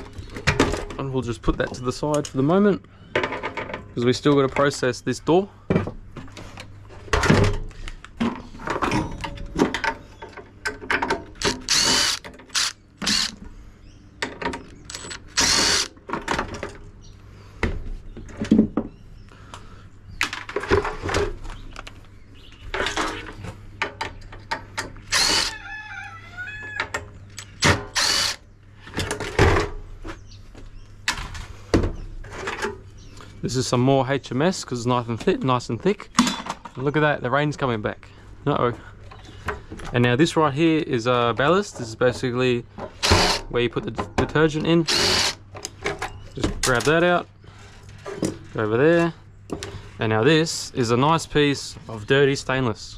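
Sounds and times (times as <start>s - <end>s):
power drill bursts: 11.4s - 13.4s, 14.9s - 16.0s, 25.1s - 25.5s, 27.6s - 28.4s, 43.0s - 43.4s, 44.8s - 45.4s.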